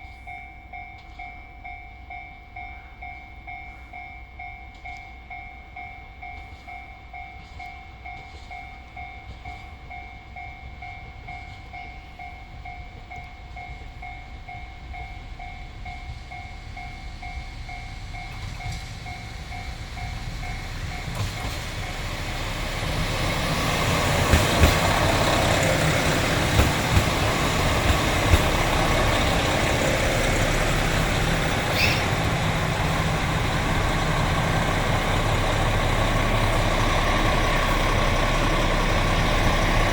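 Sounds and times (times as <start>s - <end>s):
diesel train rumbling past: 0.0s - 39.9s
wheel clacks over rail joints: 20.8s - 39.9s.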